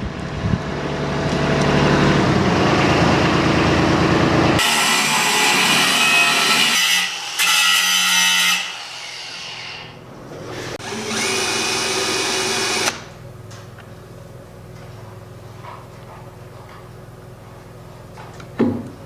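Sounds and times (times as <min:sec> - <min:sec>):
electric drill whining: 0:10.7 - 0:13.0.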